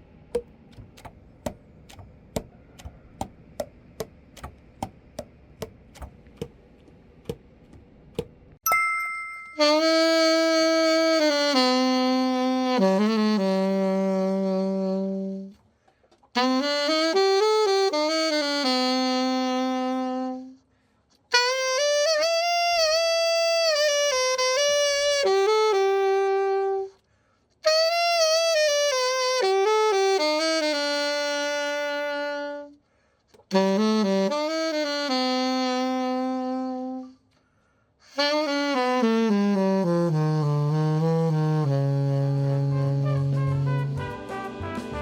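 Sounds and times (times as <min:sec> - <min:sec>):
alto saxophone melodic phrases: 0:09.6 - 0:15.6, 0:16.3 - 0:27.0, 0:27.6 - 0:32.8, 0:33.4 - 0:37.3, 0:38.0 - 0:45.0.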